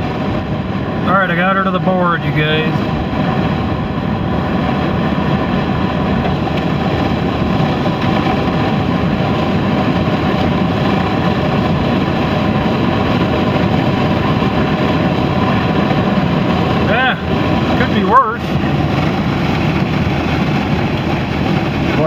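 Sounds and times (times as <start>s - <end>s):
car engine at full throttle: 0.0s - 22.0s
road and wind noise: 0.0s - 22.0s.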